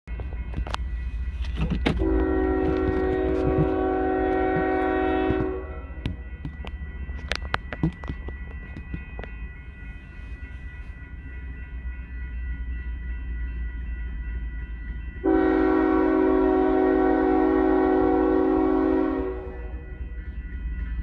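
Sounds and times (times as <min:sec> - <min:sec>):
diesel locomotive rumble: 0:00.0 - 0:13.5, 0:14.1 - 0:21.0
locomotive horn blast: 0:01.4 - 0:06.2, 0:15.2 - 0:19.8.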